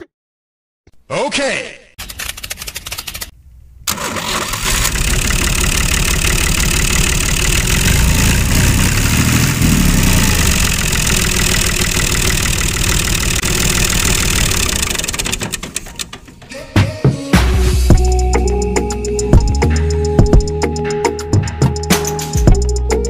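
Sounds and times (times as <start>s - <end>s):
model tractor engine idling: 4.0s - 9.0s, 9.6s - 16.4s.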